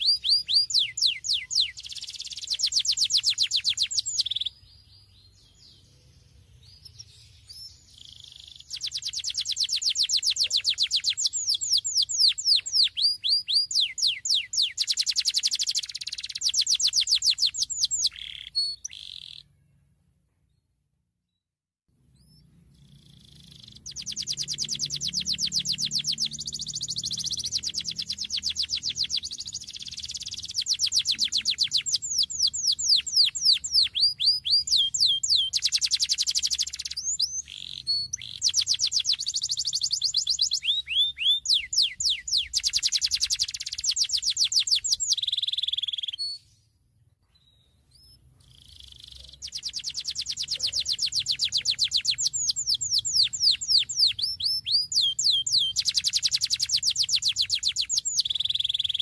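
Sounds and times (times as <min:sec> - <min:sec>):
canary singing trills: 0:00.0 - 0:20.0, 0:22.0 - 0:46.6, 0:47.3 - 0:59.0.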